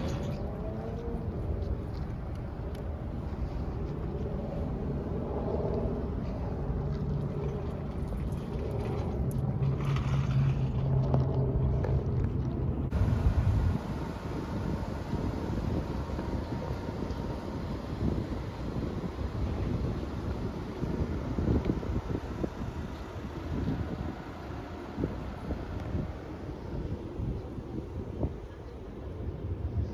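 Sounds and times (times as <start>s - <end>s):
engine low rumble: 0.0s - 29.9s
low droning note: 12.8s - 28.3s.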